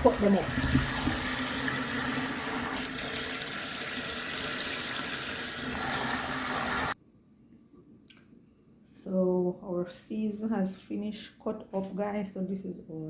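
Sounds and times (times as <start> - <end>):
tap water running into sink: 0.0 - 7.0.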